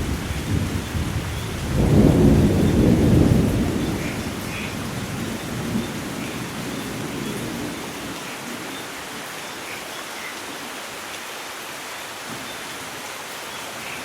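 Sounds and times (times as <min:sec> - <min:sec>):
thunder rumbling: 0:00.0 - 0:07.9
rain falling: 0:00.0 - 0:14.0.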